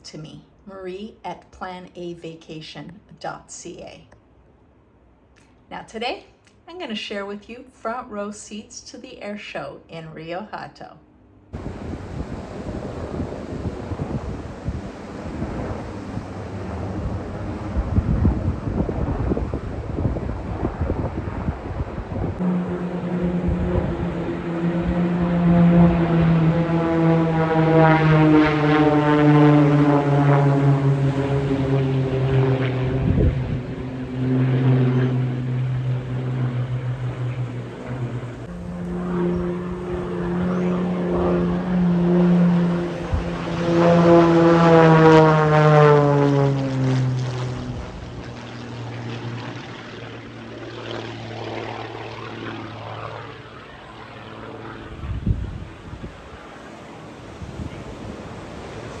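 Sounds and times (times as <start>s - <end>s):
propeller airplane flying past: 4.8s - 59.0s
wind buffeting microphone: 11.6s - 52.2s, 54.7s - 59.0s.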